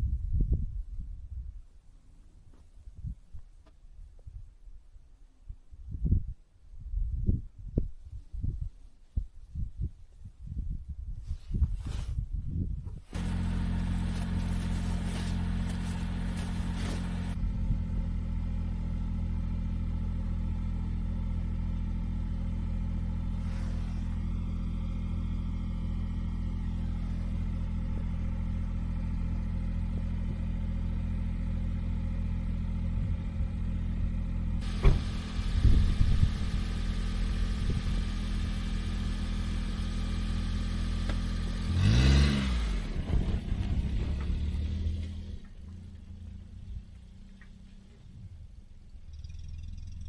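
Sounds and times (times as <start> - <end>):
engine knocks: 13.1 - 17.4, 34.6 - 38.6, 42.9 - 46.2
small vehicle engine running: 13.1 - 48.0.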